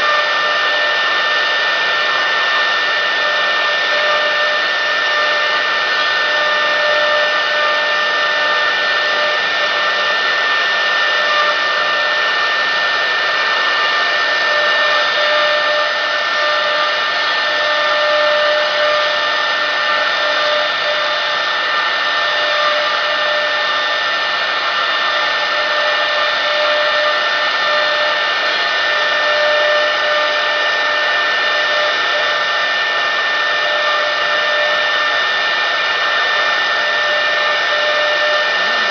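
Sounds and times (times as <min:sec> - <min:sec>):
cnc router spindle whine: 0:00.0 - 0:38.9.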